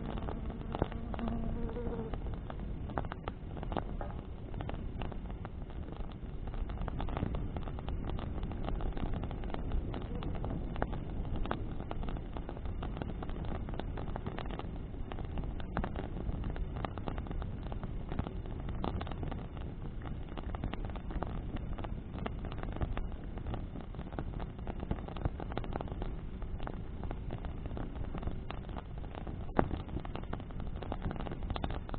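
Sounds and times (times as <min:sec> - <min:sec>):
burning wood crackling: 0:00.0 - 0:31.9
rush of flames and wind: 0:00.0 - 0:31.9.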